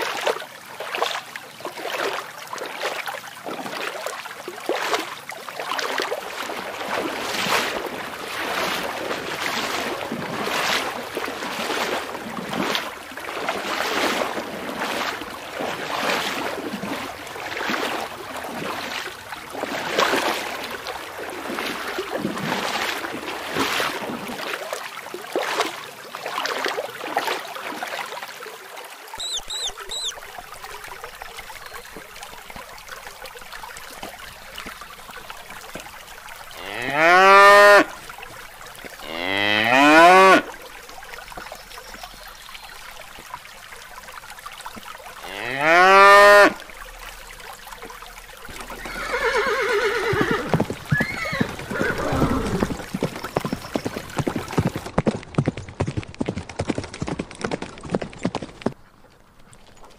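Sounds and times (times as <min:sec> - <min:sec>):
cow mooing: 0:36.6 - 0:37.9, 0:39.0 - 0:40.4, 0:45.2 - 0:46.6.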